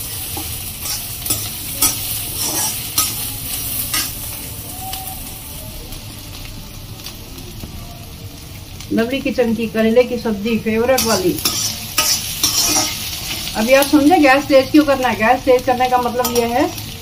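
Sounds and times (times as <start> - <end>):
vegetables sizzling in a wok: 0.0 - 17.0
metal spoon scraping a pan: 0.1 - 4.2, 11.0 - 14.0, 16.2 - 16.6.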